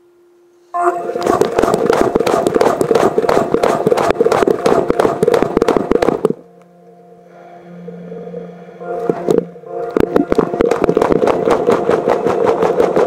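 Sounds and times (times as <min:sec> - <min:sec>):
washing machine motor hum: 0:00.8 - 0:13.0
washing machine drum tumbling: 0:10.0 - 0:13.0.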